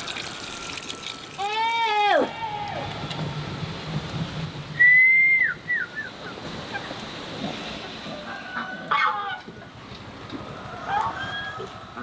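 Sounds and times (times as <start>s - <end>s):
chickens calling: 7.7s - 9.7s.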